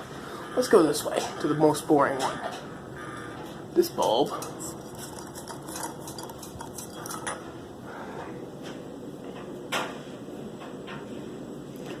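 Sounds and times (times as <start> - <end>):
steady background noise: 0.0 - 12.0
light clinks and clicks: 4.3 - 7.4.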